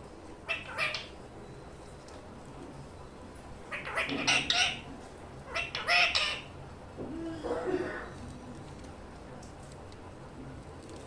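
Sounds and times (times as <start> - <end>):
budgerigar chattering: 0.5 - 1.2, 3.7 - 4.8, 5.5 - 6.5.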